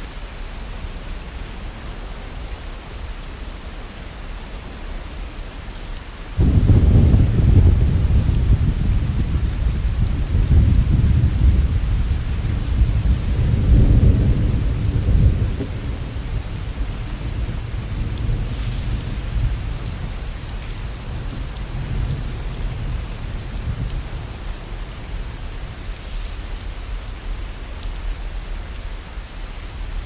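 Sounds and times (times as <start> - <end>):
heavy rain falling: 0.0 - 30.0
thunder rumbling: 6.4 - 26.1.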